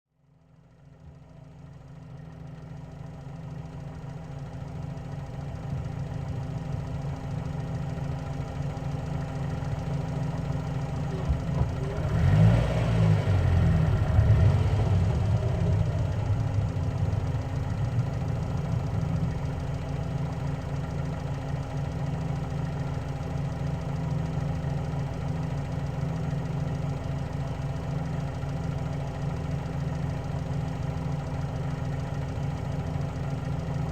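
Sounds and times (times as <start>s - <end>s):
car engine hum: 0.4s - 33.9s
road noise: 11.0s - 20.8s.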